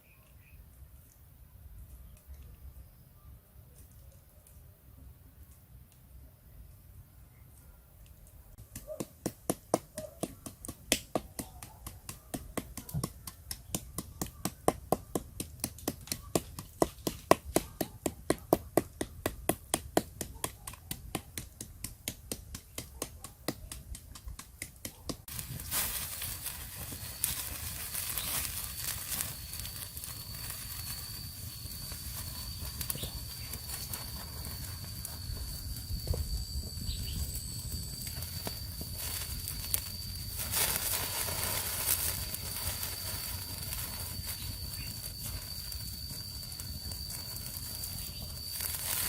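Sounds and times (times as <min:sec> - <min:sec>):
steady hiss: 0:23.9 - 0:49.0
thin high whine: 0:25.3 - 0:49.0.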